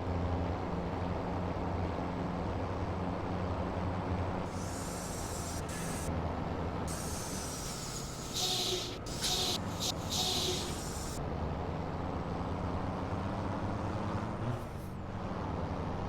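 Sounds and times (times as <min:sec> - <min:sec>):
diesel truck engine idling: 0:04.1 - 0:11.2
compressed air hiss: 0:04.5 - 0:06.1, 0:06.9 - 0:11.2.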